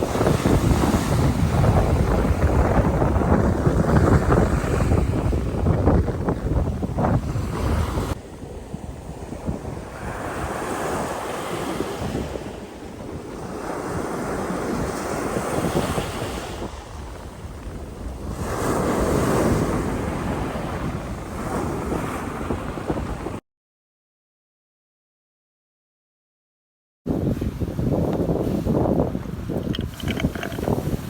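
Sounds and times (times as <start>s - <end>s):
sea waves washing onto shore: 0.0s - 23.4s
wind buffeting microphone: 0.0s - 23.4s, 27.1s - 31.0s.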